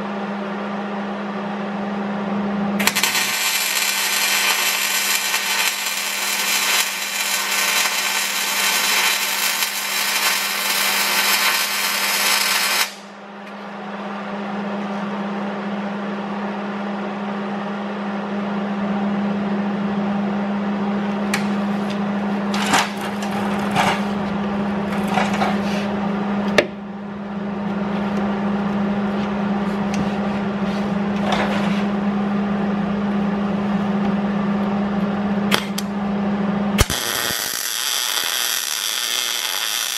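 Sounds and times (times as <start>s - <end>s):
grinder motor humming: 2.8s - 13.0s.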